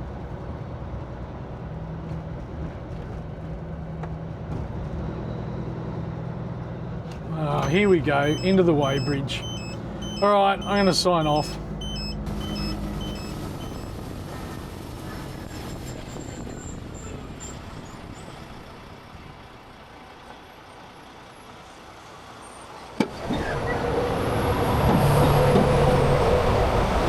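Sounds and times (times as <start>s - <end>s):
road noise: 6.4s - 27.0s
truck engine from inside cab: 6.9s - 21.4s.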